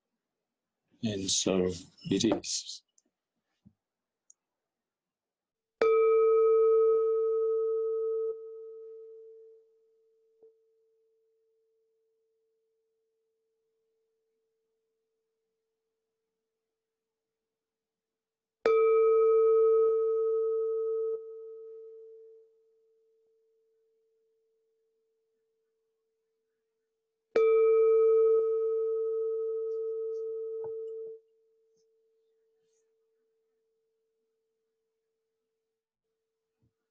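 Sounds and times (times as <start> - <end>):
meditation bell ringing: 27.4 - 31.5.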